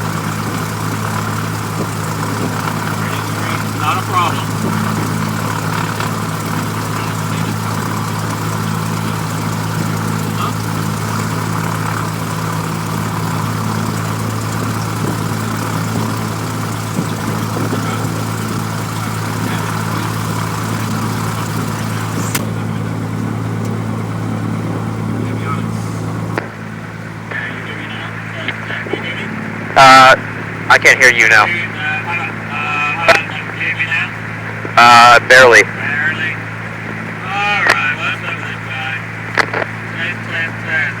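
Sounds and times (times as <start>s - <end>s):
aircraft engine idling: 0.0s - 41.0s.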